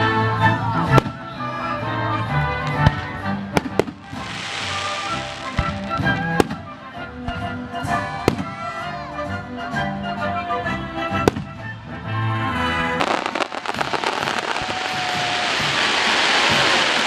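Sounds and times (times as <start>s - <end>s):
orchestra playing: 1.8s - 17.0s
fireworks bangs: 2.8s - 7.4s, 13.0s - 17.0s
fireworks crackling hiss: 3.5s - 6.8s, 12.6s - 17.0s.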